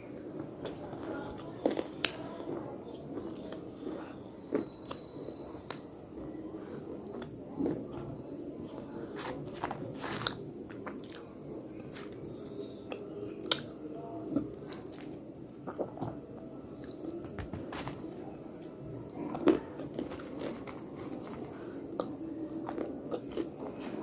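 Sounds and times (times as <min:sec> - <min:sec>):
low steady hum: 0:00.0 - 0:24.0
crunching while chewing slate: 0:09.2 - 0:16.1, 0:19.3 - 0:24.0.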